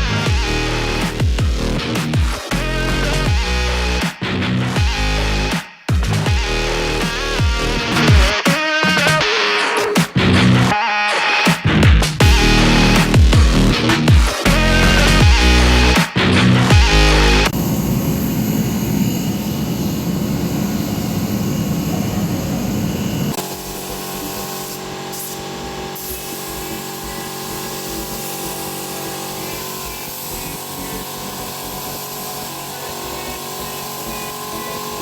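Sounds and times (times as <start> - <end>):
power tool running: 0.0 - 4.0, 12.2 - 35.0
machine hum: 16.7 - 35.0.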